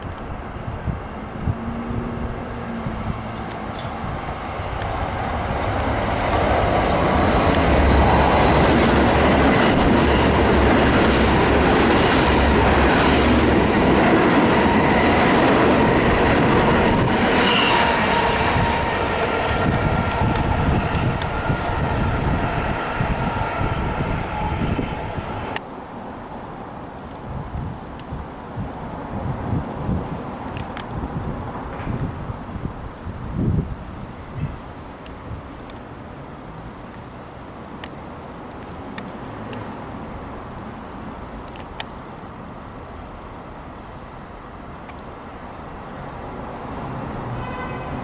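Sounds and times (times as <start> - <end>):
train rumbling past: 0.0 - 26.8, 38.8 - 48.0.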